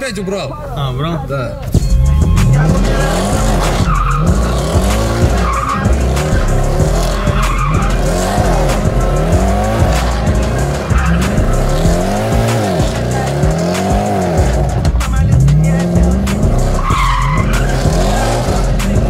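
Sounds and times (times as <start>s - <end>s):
tyres squealing: 0.6s - 19.0s
car engine revving: 0.9s - 19.0s.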